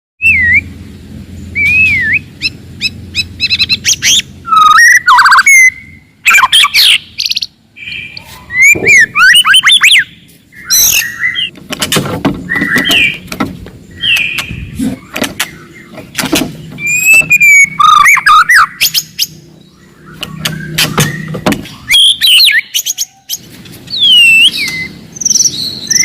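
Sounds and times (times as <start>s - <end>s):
bird singing whistles and trills: 0.2s - 0.8s, 1.4s - 11.5s, 12.4s - 13.2s, 16.8s - 26.0s.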